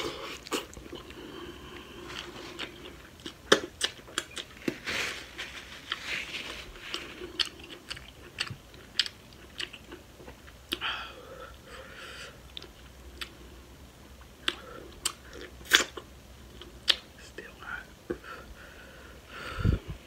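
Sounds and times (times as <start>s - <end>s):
chewing with lip smacks: 0.3s - 4.8s, 6.9s - 10.8s
paper napkin rustling: 4.5s - 7.2s.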